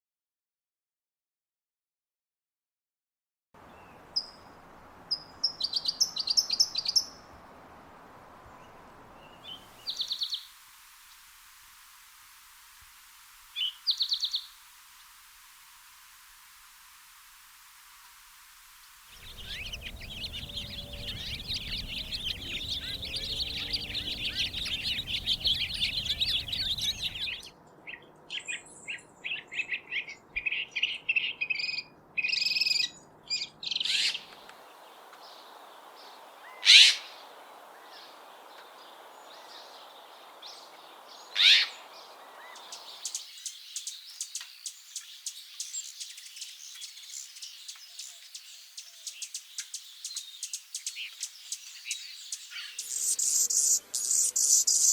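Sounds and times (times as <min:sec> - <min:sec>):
loud sharp falling bird calls: 0:19.2 - 0:27.4, 0:41.3 - 0:43.2
songbirds chirping and singing: 0:19.2 - 0:27.5, 0:33.4 - 0:54.9.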